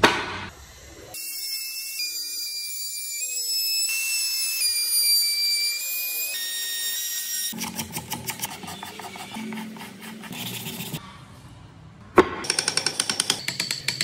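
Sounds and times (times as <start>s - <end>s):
rotary tool whining: 1.1s - 9.8s.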